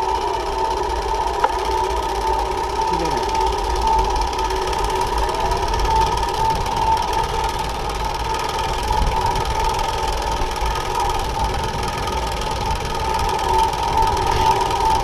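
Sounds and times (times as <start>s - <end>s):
steady mechanical buzz: 0.0s - 15.0s
wind rumble on microphone: 5.2s - 15.0s.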